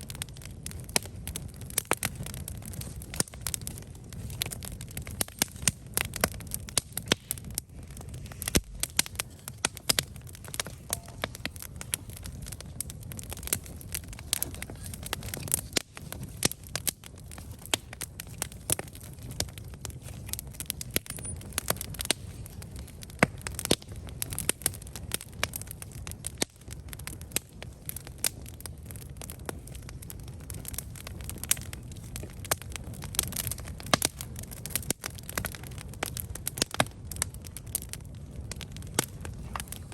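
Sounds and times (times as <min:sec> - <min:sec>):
campfire crackling and popping: 0:00.0 - 0:39.9
low rumble of flames: 0:00.0 - 0:39.9.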